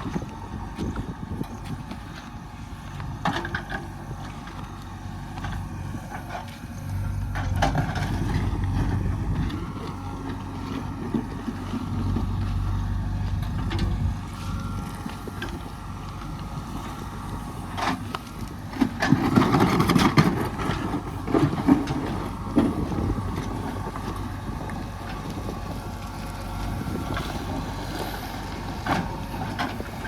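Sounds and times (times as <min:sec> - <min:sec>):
heavy diesel engine running: 0:00.0 - 0:30.0.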